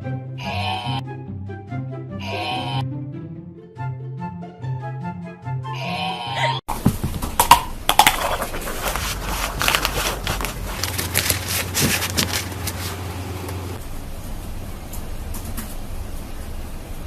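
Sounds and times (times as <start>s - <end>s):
rustling and clattering: 6.7s - 16.4s
low steady hum: 6.7s - 17.0s.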